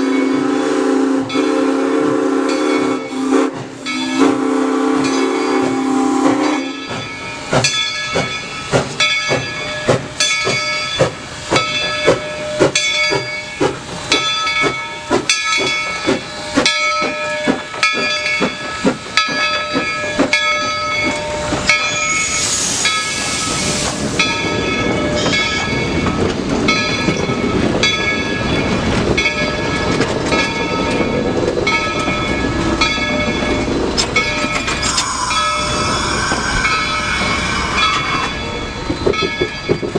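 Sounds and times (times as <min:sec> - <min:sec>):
steam locomotive whistle: 0:00.0 - 0:06.8, 0:21.4 - 0:24.6, 0:34.6 - 0:39.3
rumble of moving train: 0:00.0 - 0:39.9
steam hissing: 0:21.4 - 0:24.8, 0:34.4 - 0:39.2
locomotive bell ringing: 0:24.2 - 0:39.9.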